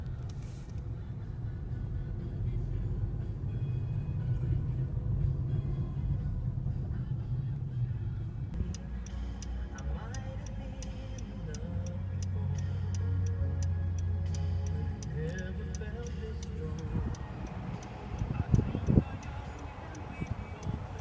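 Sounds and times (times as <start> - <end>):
sharp evenly spaced ticks: 8.6 - 21.0.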